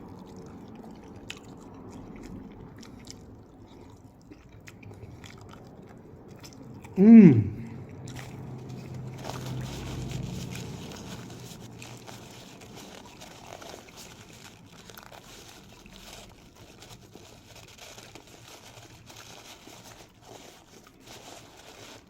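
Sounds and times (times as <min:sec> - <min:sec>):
person chewing: 0:00.0 - 0:22.0
small clicks and crinkles: 0:08.2 - 0:22.0.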